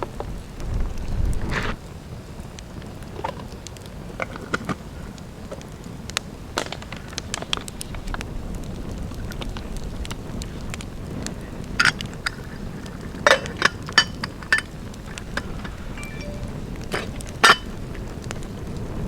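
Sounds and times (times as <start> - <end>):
campfire crackling and popping: 1.8 - 14.1.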